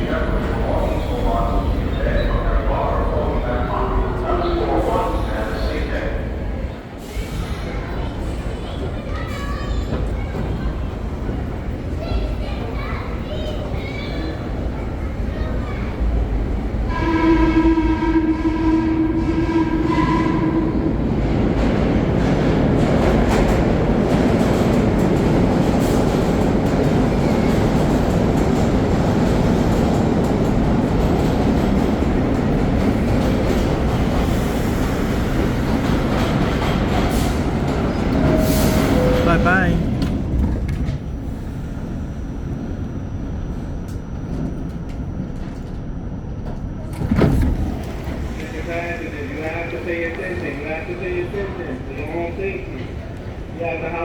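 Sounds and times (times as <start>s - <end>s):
train clattering over rails: 0.0s - 42.1s
train horn: 16.8s - 21.0s.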